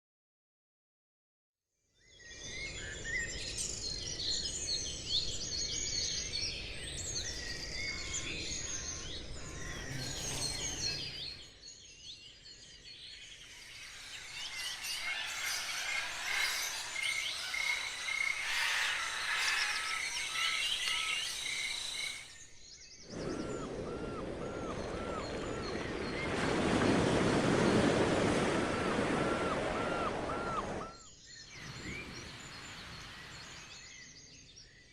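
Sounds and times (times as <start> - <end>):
birds chirping and whistling: 2.2 - 34.9
steady outdoor noise: 13.0 - 27.2
bird repeating rising-falling note: 13.4 - 22.4.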